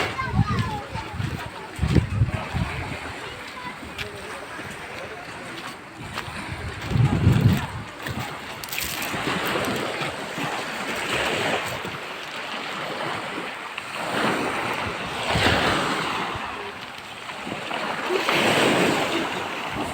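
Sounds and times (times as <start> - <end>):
sea waves washing ashore: 0.0 - 19.9.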